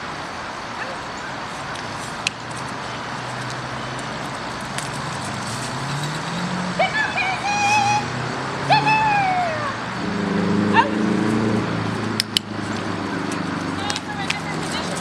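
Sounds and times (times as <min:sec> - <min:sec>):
road traffic noise: 0:00.0 - 0:15.0
vehicle engine revving: 0:03.2 - 0:15.0.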